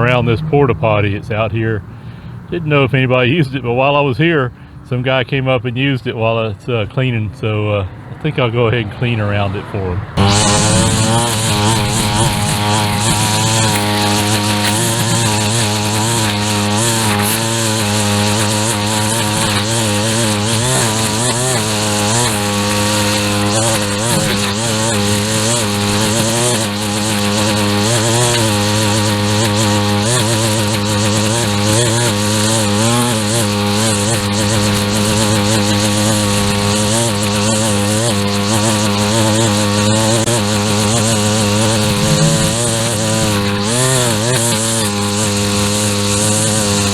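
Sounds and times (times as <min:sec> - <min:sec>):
string trimmer cutting grass: 0:10.2 - 0:46.9.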